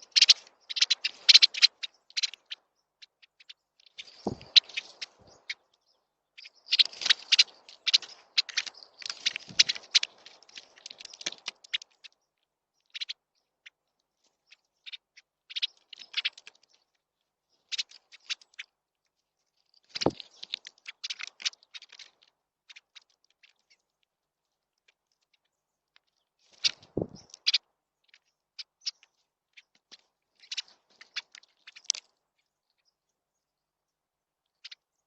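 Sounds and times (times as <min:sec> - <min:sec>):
birds chirping: 0:00.0 - 0:18.6, 0:25.5 - 0:33.7.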